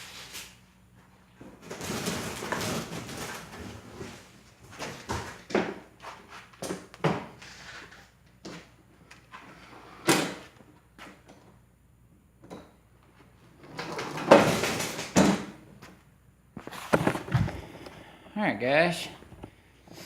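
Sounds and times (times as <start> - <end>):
cardboard packaging knocks and scrapes: 16.6 - 17.6.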